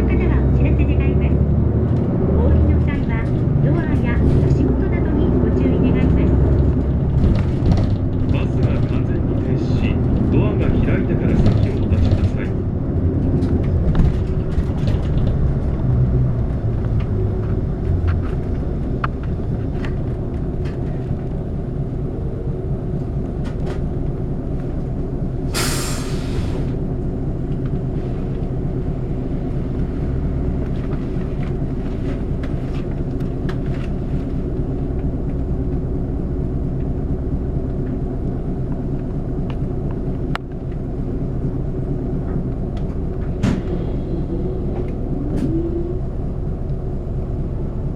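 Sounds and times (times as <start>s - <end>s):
bus engine rumble: 0.0s - 47.9s
air brake hiss: 25.5s - 26.8s.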